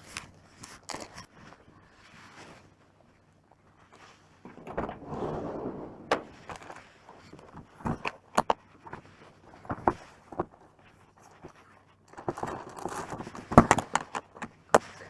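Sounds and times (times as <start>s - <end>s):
rustling scrape: 4.5s - 6.8s.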